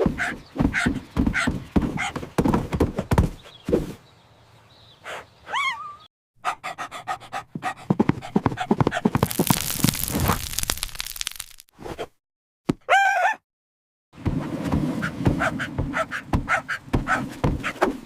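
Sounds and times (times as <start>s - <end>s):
cartoon dog panting: 6.4s - 9.2s, 15.4s - 17.8s
electric static crackle: 9.2s - 11.7s.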